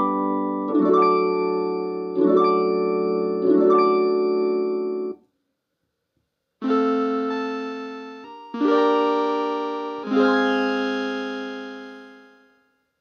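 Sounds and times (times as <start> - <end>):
electronic chords strummed: 6.6 - 12.6.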